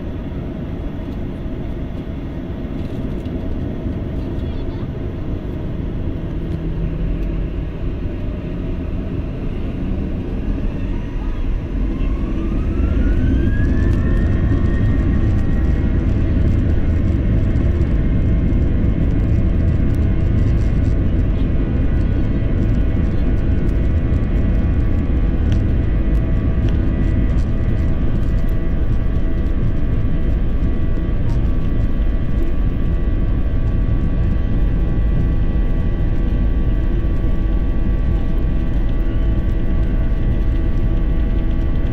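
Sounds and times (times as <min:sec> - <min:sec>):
jet engines rumbling in cabin: 0:00.0 - 0:41.9
steady whining tones: 0:00.0 - 0:41.9
jet engines spooling up: 0:08.9 - 0:21.2.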